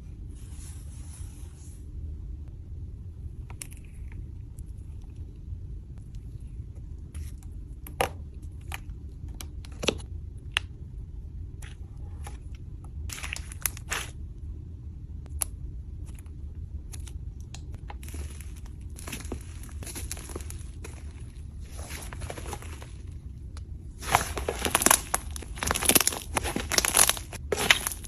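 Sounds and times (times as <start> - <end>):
steady low rumble: 0.0 - 28.0
slime clicks and crackles: 18.0 - 23.1, 24.0 - 28.0.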